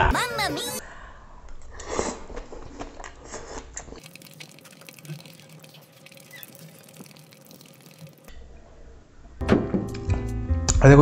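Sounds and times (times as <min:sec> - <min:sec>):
wet chewing and mouth clicks: 0:01.8 - 0:08.3.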